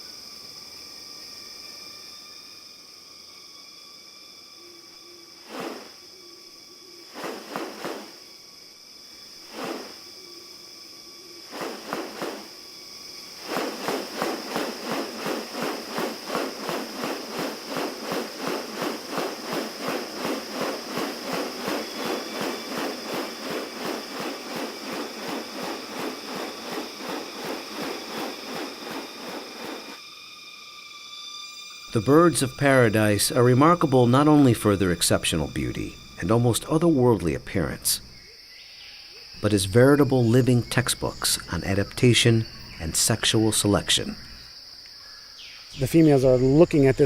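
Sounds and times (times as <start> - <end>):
high insect drone: 0.0 - 47.0
rapid pulsing animal calls: 13.3 - 30.0.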